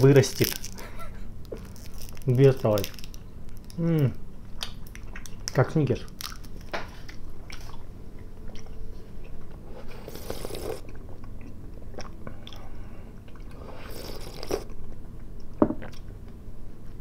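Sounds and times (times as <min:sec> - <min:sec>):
chewing and crunching candy: 0:00.0 - 0:14.8
slurping tea: 0:09.8 - 0:10.8, 0:13.6 - 0:14.7.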